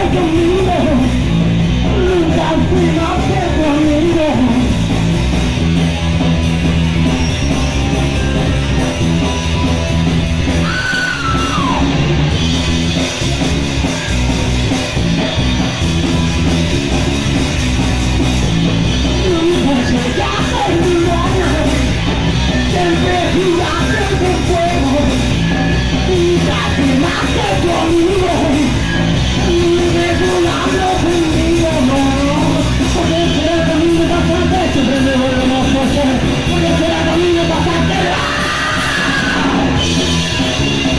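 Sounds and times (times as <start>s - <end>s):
loud electric guitars: 0.0s - 40.9s
person shouting vocals: 36.8s - 39.8s.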